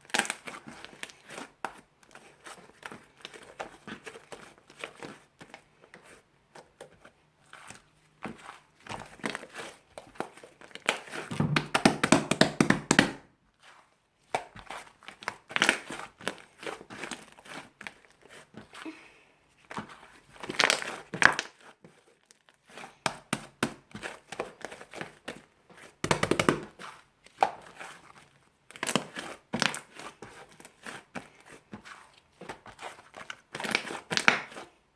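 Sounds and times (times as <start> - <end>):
slime crackling and popping: 0.1 - 1.2, 14.3 - 17.3, 20.3 - 21.6, 32.6 - 34.6.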